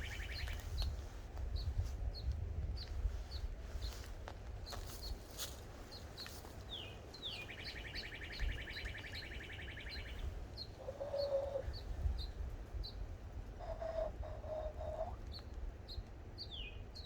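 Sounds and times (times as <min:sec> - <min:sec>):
low steady bird note: 0:00.0 - 0:00.5
bird trill: 0:00.0 - 0:00.6, 0:06.7 - 0:11.9
songbirds chip notes: 0:00.0 - 0:17.0.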